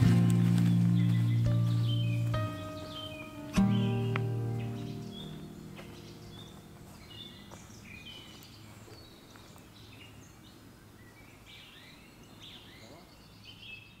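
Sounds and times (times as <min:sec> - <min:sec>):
birds whistling and chirping: 0:00.0 - 0:10.4
steady background hiss: 0:00.0 - 0:14.0.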